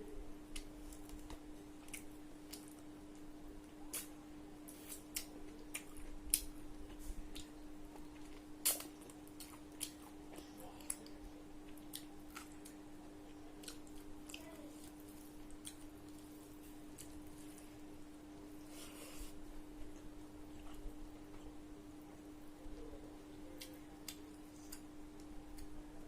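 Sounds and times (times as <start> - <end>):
steady low hum: 0.0 - 26.0
mouth clicks and chewing: 3.9 - 4.1.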